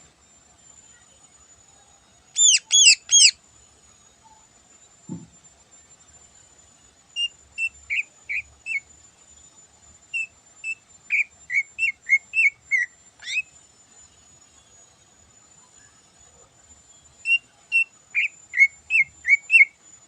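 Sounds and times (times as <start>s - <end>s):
bird whistling song: 2.4s - 3.4s, 7.2s - 8.9s, 10.1s - 13.5s, 17.2s - 19.8s.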